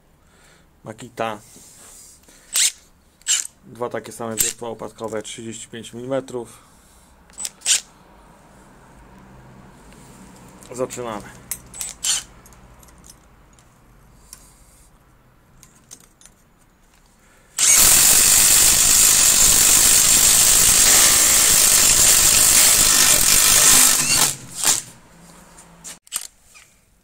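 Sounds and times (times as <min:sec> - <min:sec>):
impact drivers boring through wood: 0:11.8 - 0:12.3, 0:17.6 - 0:25.0.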